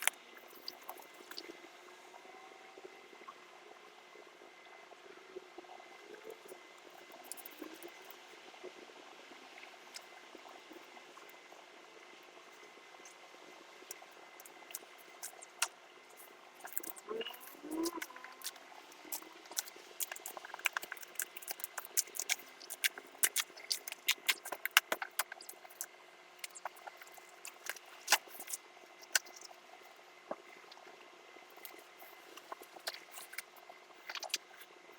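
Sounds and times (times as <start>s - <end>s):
small parts clicking and tapping: 16.6s - 29.4s.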